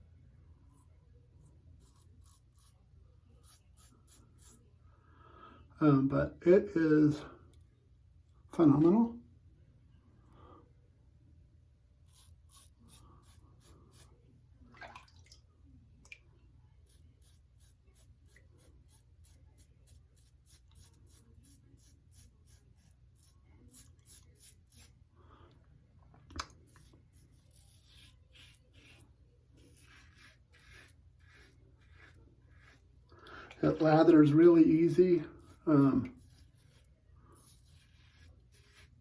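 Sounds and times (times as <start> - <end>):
razor scraping stubble: 0.7 - 4.7, 12.0 - 14.2, 16.8 - 25.0, 26.3 - 39.0.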